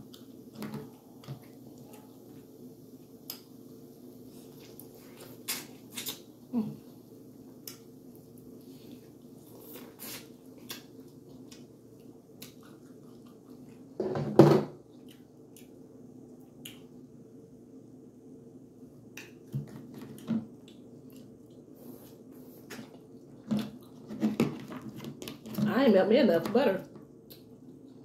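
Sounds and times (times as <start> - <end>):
person chewing corn: 0.0 - 3.6, 4.2 - 6.4, 7.4 - 14.0, 14.8 - 17.1, 19.0 - 25.6, 27.1 - 28.0
steady low hum: 0.0 - 28.0.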